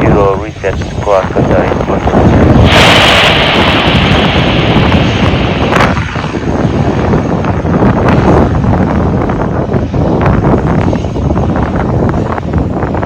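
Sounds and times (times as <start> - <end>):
wind buffeting microphone: 0.0 - 13.0
sharp crackle: 0.6 - 9.3.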